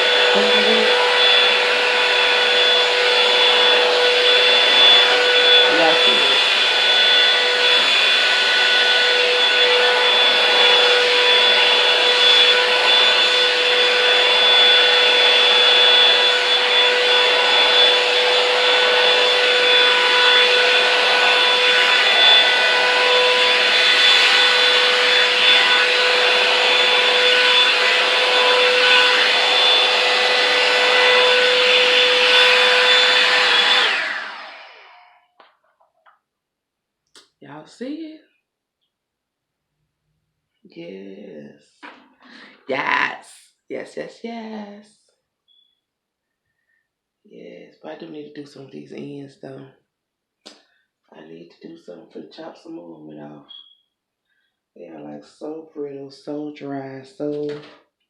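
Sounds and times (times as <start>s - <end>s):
hair dryer running: 0.0s - 35.4s, 41.8s - 43.1s.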